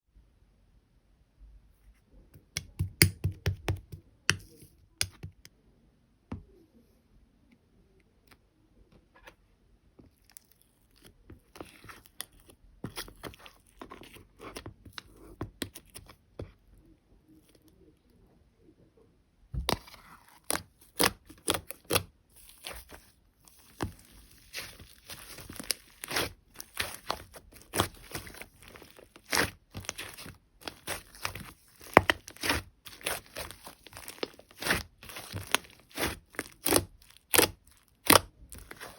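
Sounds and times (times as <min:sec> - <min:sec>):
slime squelching and crackling: 0:19.6 - 0:38.9.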